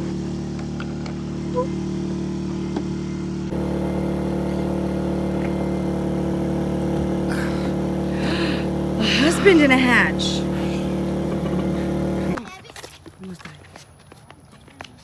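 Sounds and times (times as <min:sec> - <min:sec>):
boat diesel engine droning: 0:00.0 - 0:12.4.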